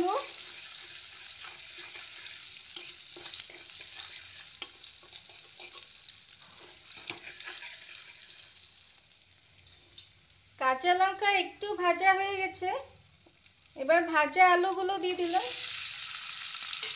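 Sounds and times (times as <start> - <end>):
chillies sizzling in oil: 0.0 - 16.9
steel spatula scraping a pan: 0.2 - 8.6.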